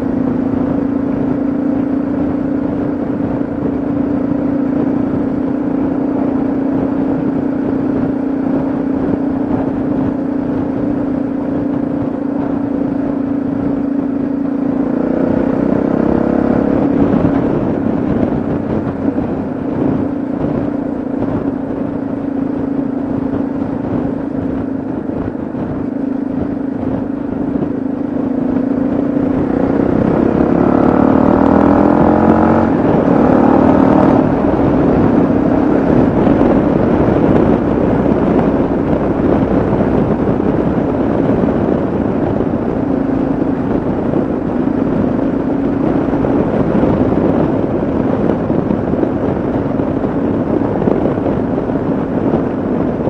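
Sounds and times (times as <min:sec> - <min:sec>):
motorcycle engine running: 0:00.0 - 0:53.0
wind noise: 0:00.0 - 0:53.0.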